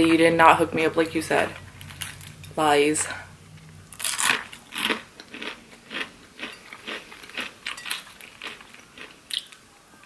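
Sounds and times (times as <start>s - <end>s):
person chewing crunchy food: 3.9s - 9.6s.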